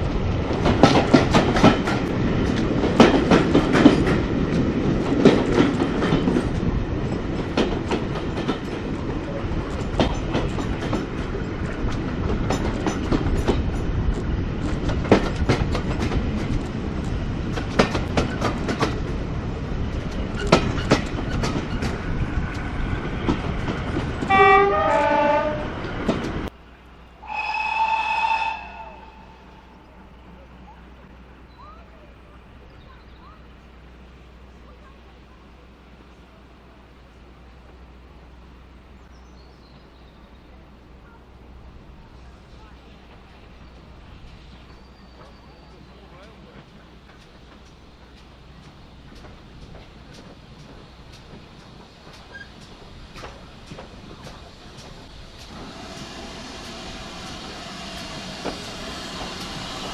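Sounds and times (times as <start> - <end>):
train wheels clattering: 0.0 - 26.5, 43.0 - 59.9
steady train rumble: 0.0 - 59.9
locomotive horn: 24.3 - 25.8, 27.2 - 29.7, 55.6 - 59.9.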